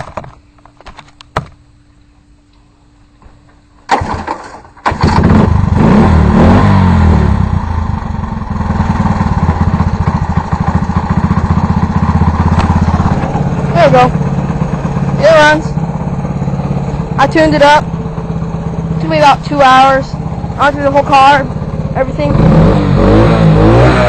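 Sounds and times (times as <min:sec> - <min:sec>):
small engine starting and running: 0:03.9 - 0:14.5.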